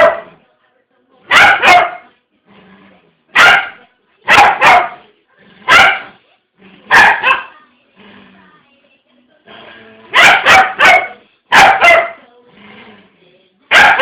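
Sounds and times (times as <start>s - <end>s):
dog barking: 0.0s - 0.4s, 1.3s - 2.1s, 3.3s - 5.0s, 5.7s - 6.2s, 6.9s - 7.6s, 10.1s - 12.2s, 13.7s - 14.0s.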